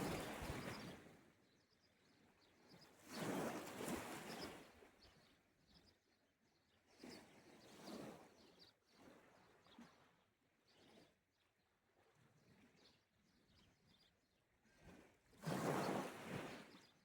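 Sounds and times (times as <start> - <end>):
gentle sea waves washing: 0.0 - 0.7.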